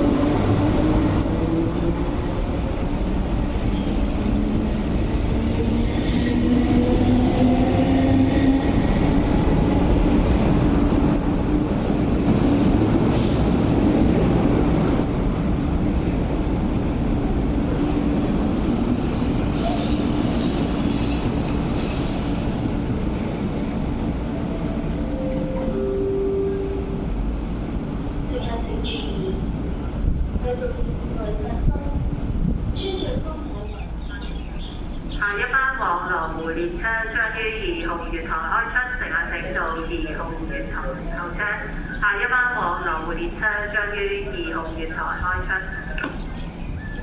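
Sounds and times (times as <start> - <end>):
train wheels rumbling on rails: 0.0 - 25.8.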